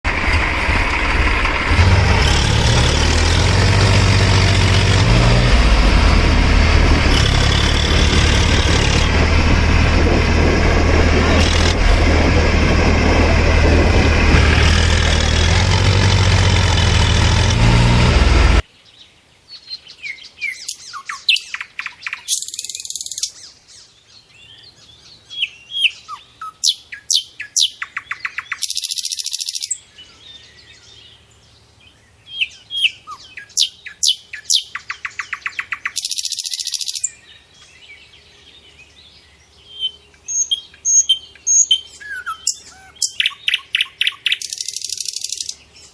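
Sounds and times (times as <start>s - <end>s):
loud dense sound: 0.2s - 18.6s
birds chirping and calling: 18.9s - 45.9s.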